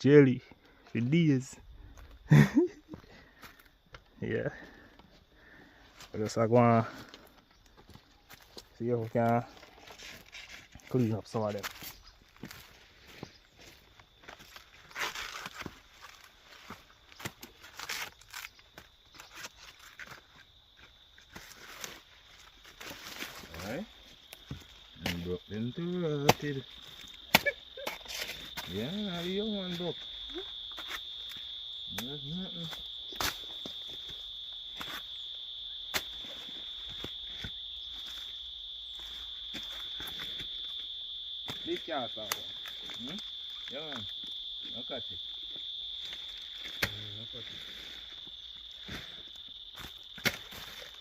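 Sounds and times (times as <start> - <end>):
insects droning: 0.0 - 51.0
dry plants rustling and snapping: 11.6 - 25.4, 46.0 - 47.1.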